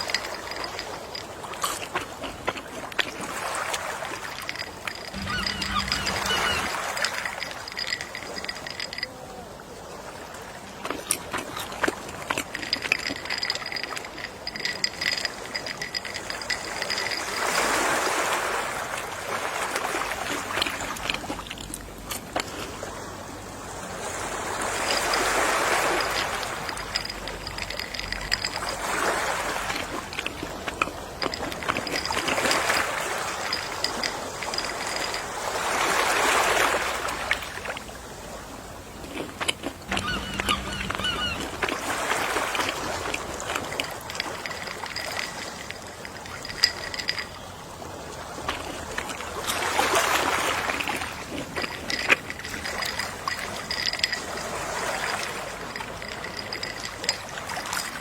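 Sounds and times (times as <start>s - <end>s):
ocean waves washing ashore: 0.0s - 58.0s
faint high wavering tone: 4.5s - 9.2s, 39.9s - 41.8s.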